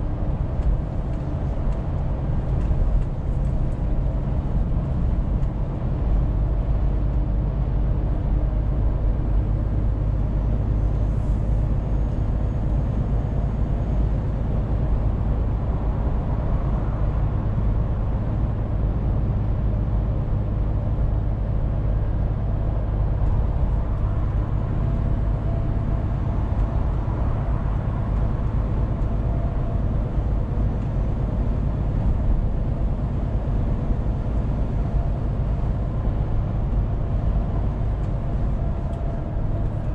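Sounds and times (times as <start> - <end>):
road noise: 0.0 - 39.9
truck engine droning: 0.0 - 39.9.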